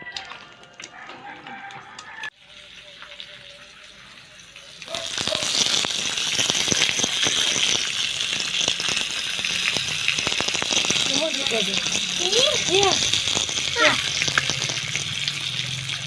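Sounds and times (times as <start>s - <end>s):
food sizzling in hot oil: 2.1s - 16.0s
oil crackling pops: 4.8s - 16.0s.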